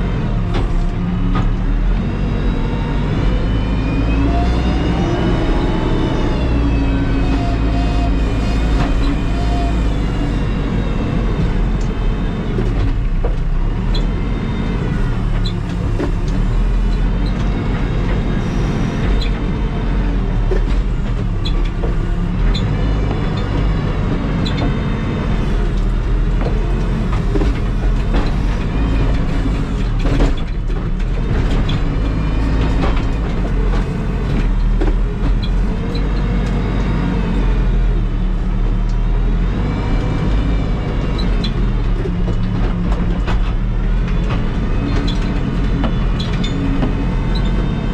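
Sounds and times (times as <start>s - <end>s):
backhoe diesel engine running: 0.0s - 47.9s.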